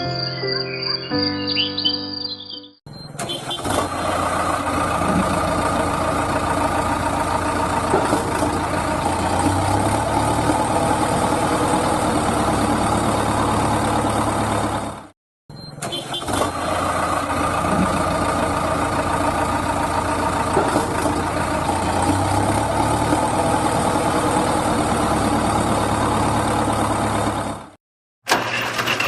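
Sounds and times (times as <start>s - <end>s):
small engine running: 3.4s - 15.0s, 16.2s - 27.6s.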